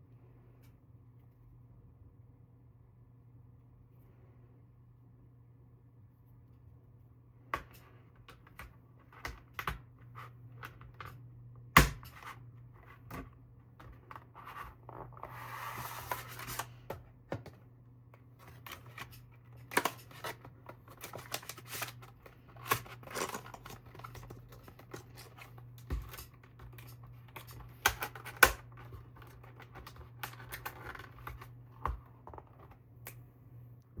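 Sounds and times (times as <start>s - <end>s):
packaging rustling: 18.4s - 31.6s.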